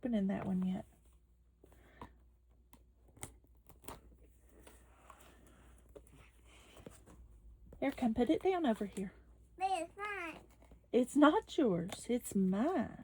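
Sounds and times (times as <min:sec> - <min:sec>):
box and packaging clicks and rustles: 0:00.2 - 0:09.1, 0:11.6 - 0:13.0.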